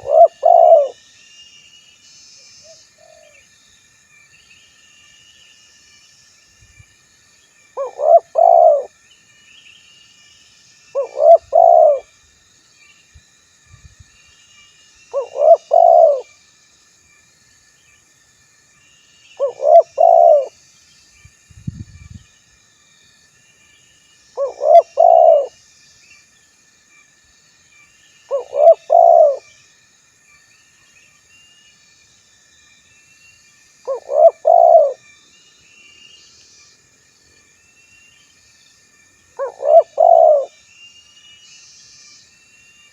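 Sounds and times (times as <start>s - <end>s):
dove cooing: 0.0s - 1.0s, 7.8s - 8.9s, 11.0s - 12.1s, 15.2s - 16.3s, 19.4s - 20.5s, 24.4s - 25.5s, 28.3s - 29.5s, 33.9s - 35.0s, 39.4s - 40.6s.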